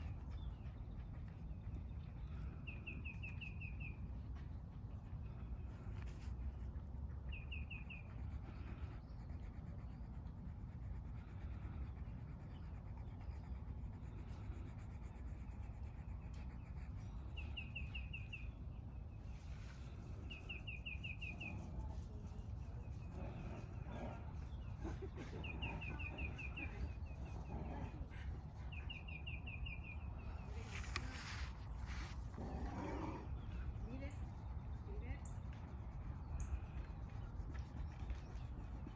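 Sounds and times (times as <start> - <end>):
bird chirping: 0.0 - 4.0, 7.3 - 8.2, 16.4 - 18.7, 20.2 - 21.7, 28.6 - 30.6
low outdoor rumble: 0.0 - 38.9.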